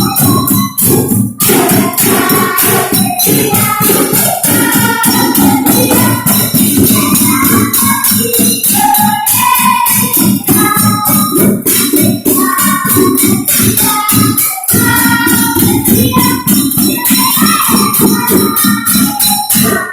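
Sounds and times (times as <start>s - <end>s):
rhythmic percussion: 0.0s - 19.9s
tambourine jingling: 0.0s - 19.9s
voices singing: 0.0s - 19.9s.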